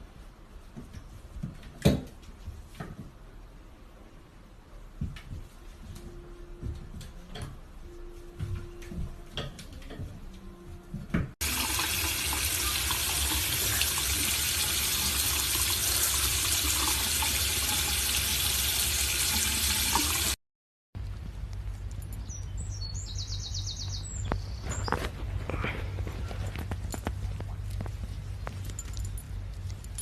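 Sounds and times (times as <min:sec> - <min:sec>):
water running: 0:11.4 - 0:20.4.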